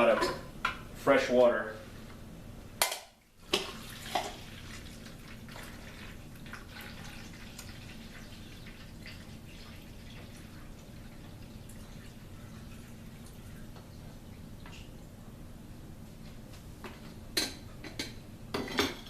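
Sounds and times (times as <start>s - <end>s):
water trickling and dripping: 3.5s - 15.0s
steady low hum: 4.2s - 19.0s.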